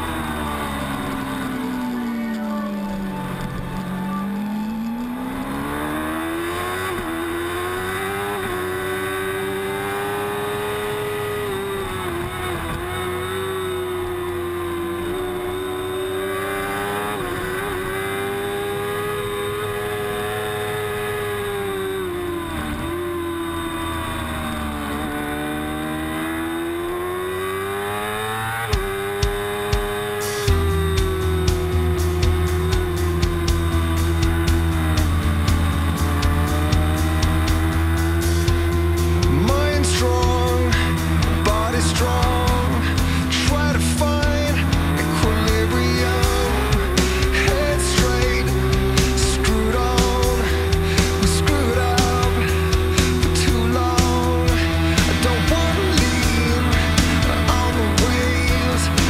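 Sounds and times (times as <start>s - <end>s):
motorcycle engine at high revs: 0.0s - 59.0s
sharp thumps: 28.7s - 39.7s.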